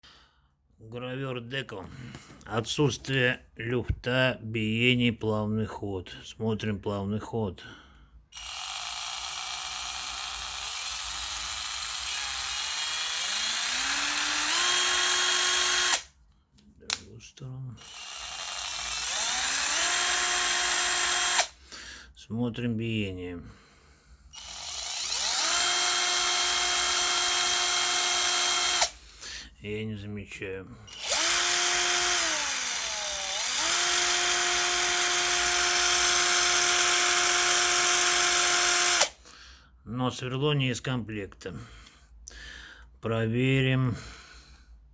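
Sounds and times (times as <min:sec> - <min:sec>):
rotary tool motor whining: 0:08.4 - 0:16.1, 0:17.8 - 0:21.6, 0:24.4 - 0:29.0, 0:30.9 - 0:39.2.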